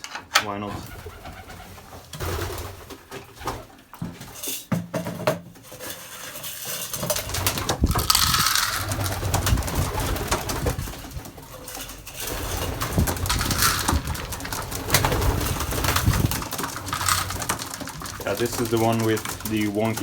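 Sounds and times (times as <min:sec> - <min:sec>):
rustling scattering noise: 0:06.2 - 0:20.0
pigeons cooing: 0:07.2 - 0:20.0.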